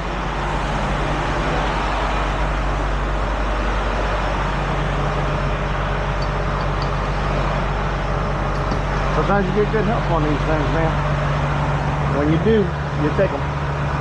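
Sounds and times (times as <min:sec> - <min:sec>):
truck engine humming: 0:00.0 - 0:14.0.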